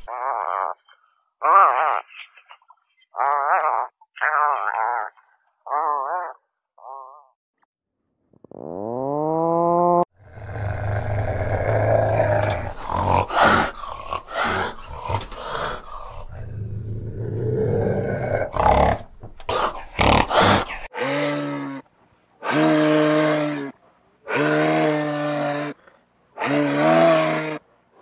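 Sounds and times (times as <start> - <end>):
cat growling: 10.2 - 21.8.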